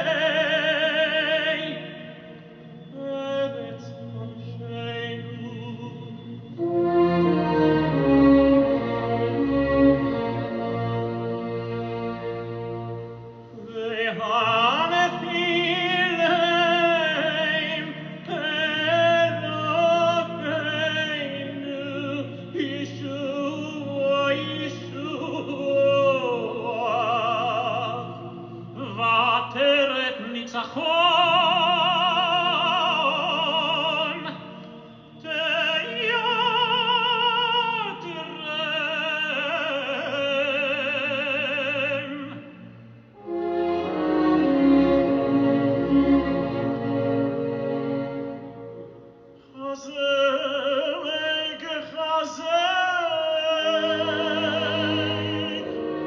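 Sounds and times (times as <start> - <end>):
orchestral accompaniment: 0.0 - 36.1, 43.1 - 49.4, 53.3 - 56.0
operatic solo singing: 52.9 - 56.0.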